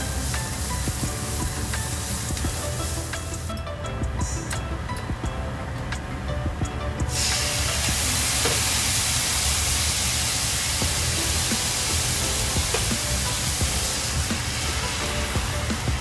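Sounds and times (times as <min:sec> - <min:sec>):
food sizzling in a frying pan: 0:00.0 - 0:03.5, 0:07.1 - 0:16.0
background music: 0:00.0 - 0:16.0.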